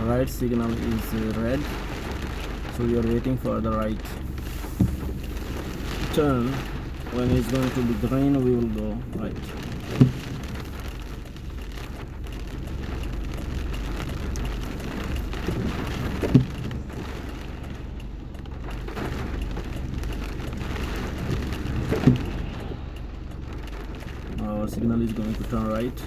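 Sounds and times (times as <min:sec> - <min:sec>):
engine idling rumble: 0:00.0 - 0:26.0
rain pattering on a car: 0:00.0 - 0:26.0
short thump: 0:04.7 - 0:05.3.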